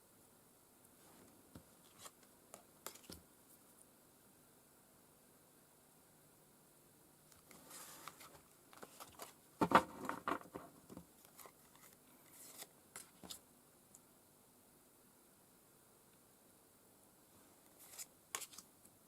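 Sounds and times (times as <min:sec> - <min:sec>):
cards being shuffled: 0:02.8 - 0:03.2, 0:07.4 - 0:10.6, 0:11.2 - 0:13.4, 0:17.7 - 0:18.7.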